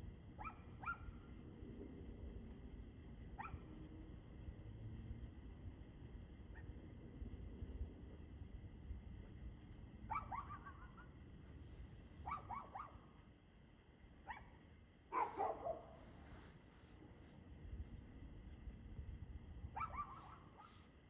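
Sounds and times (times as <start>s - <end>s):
dog barking: 0.4s - 1.2s, 3.4s - 3.7s, 10.1s - 11.1s, 12.2s - 13.2s, 14.2s - 16.1s, 19.7s - 20.8s.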